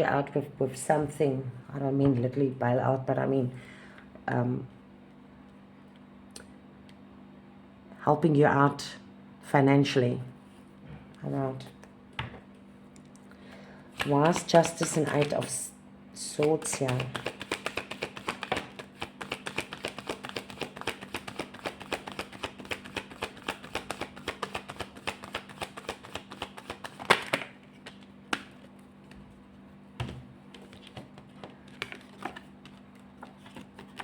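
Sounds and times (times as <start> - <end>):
cards being shuffled: 14.0 - 15.6, 16.4 - 34.0.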